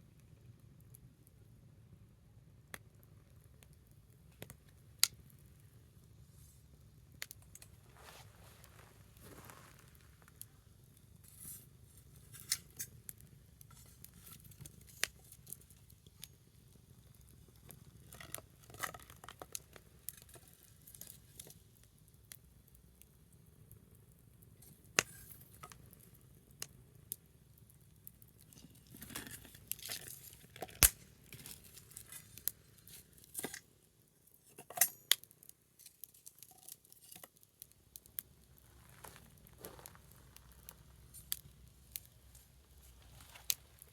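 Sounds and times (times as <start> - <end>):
small wood fire crackling: 0.0 - 43.9.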